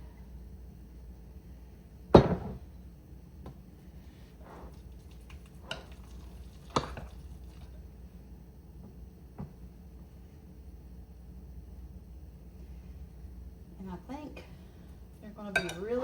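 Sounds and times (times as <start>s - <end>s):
kitchen items knocking on countertop: 2.2s - 2.6s.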